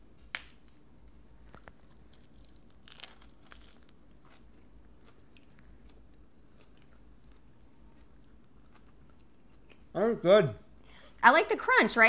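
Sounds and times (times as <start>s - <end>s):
crisp crunches of chewing lettuce: 1.4s - 9.9s.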